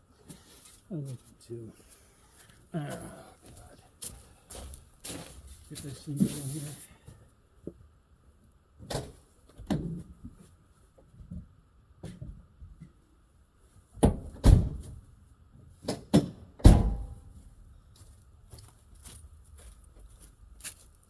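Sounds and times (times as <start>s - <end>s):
knocks and clunks on a car: 8.8s - 10.4s, 14.0s - 15.0s, 15.8s - 17.3s.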